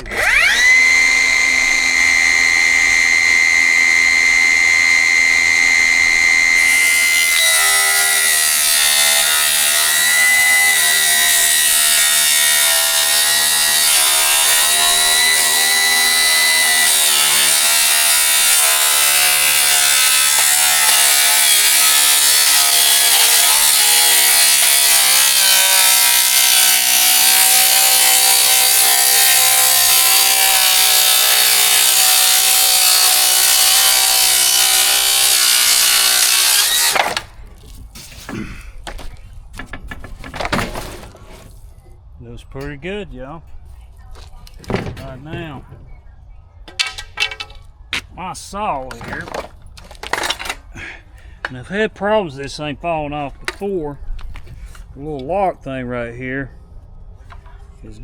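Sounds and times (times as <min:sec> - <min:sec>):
electric power saw cutting: 0:00.0 - 0:37.4.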